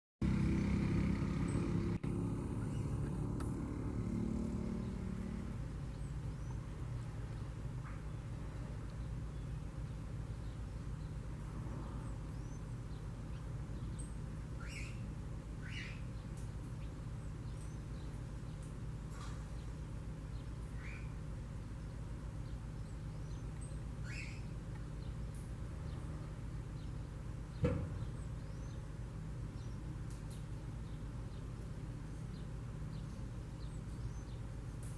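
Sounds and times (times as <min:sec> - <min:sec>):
low motor hum: 0:00.2 - 0:34.9
faint bird chirps: 0:11.8 - 0:19.8, 0:20.4 - 0:21.2, 0:21.8 - 0:25.2
sharp knock: 0:27.6 - 0:28.0.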